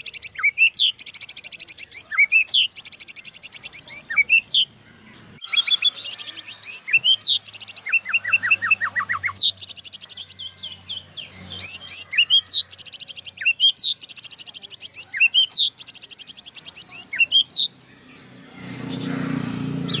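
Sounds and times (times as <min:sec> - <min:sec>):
songbird singing chirps and trills: 0:00.0 - 0:20.0.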